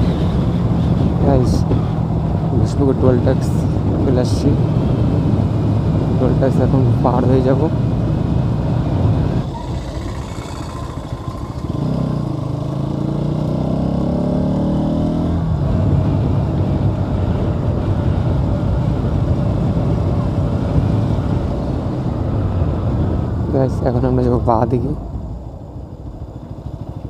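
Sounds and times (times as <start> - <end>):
wind noise: 0.0 - 14.2, 14.8 - 27.0
motorcycle engine accelerating: 7.4 - 24.2.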